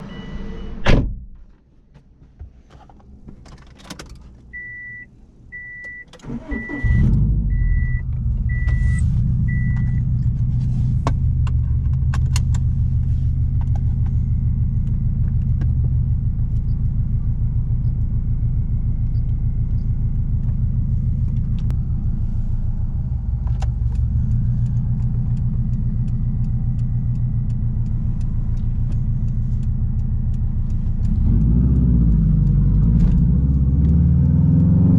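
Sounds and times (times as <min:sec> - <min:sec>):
thump: 0:00.8 - 0:01.4
car engine starting and idling: 0:02.2 - 0:34.9.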